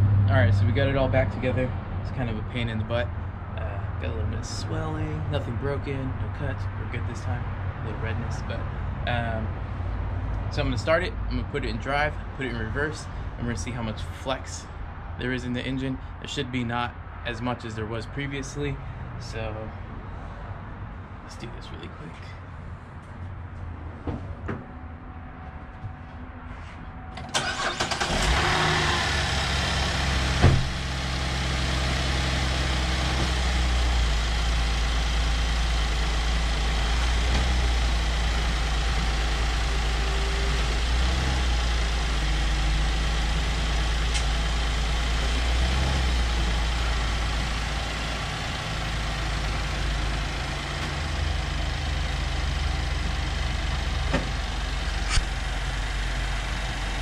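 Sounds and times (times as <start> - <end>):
car engine idling: 27.1 - 57.0
sharp knock: 30.4 - 30.8.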